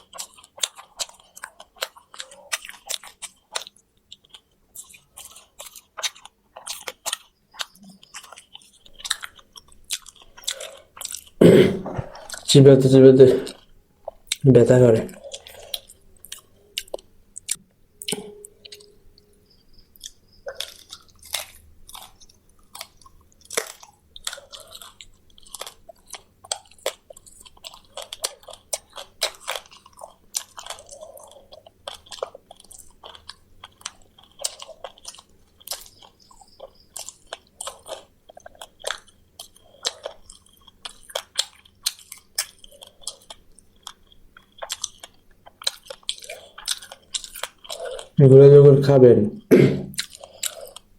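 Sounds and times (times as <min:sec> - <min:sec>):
chewing and crunching bones: 0:00.0 - 0:48.5, 0:49.9 - 0:50.9.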